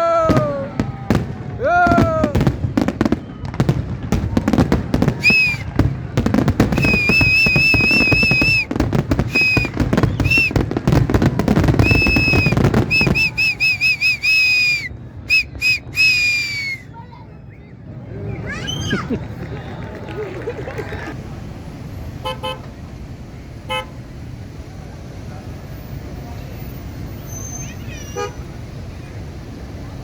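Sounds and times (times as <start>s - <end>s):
fireworks bangs and crackling: 0.0s - 16.7s
shrill whistle blasts: 5.2s - 5.8s, 6.7s - 10.6s, 11.8s - 16.9s, 27.2s - 28.3s.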